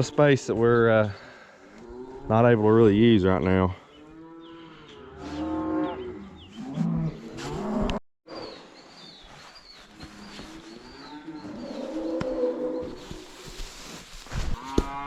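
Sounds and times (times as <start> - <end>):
cattle mooing: 4.1 - 8.0.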